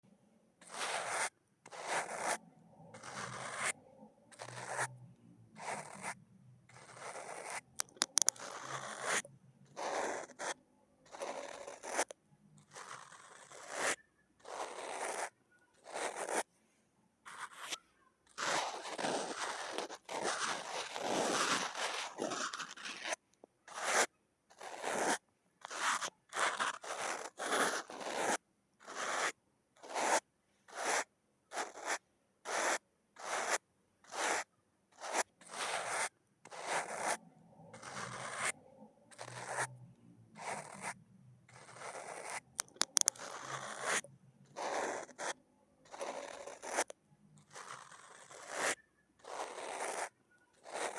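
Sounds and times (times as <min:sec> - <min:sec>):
fingernails scratching hard surface: 0:00.6 - 0:02.4, 0:03.0 - 0:04.9, 0:05.6 - 0:12.1, 0:12.7 - 0:16.5, 0:17.3 - 0:30.2, 0:31.6 - 0:39.7, 0:40.4 - 0:50.9.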